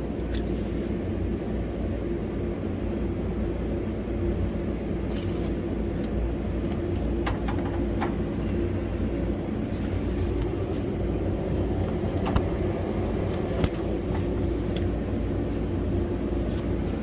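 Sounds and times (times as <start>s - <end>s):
machine droning: 0.0s - 17.0s
sharp clicks and light knocks: 6.0s - 8.2s.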